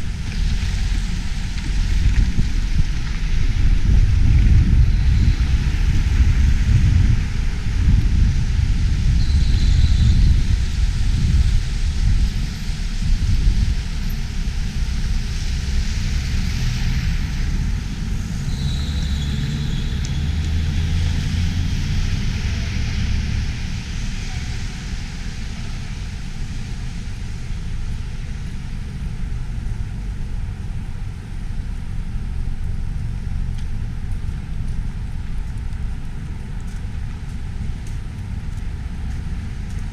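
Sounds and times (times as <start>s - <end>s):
wind buffeting microphone: 0.0s - 18.5s
road traffic passing: 0.0s - 39.9s.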